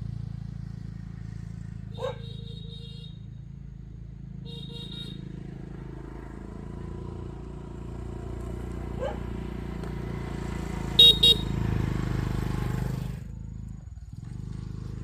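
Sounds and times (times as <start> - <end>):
motorbike engine running: 0.0 - 15.0
horn beeps: 10.9 - 11.7.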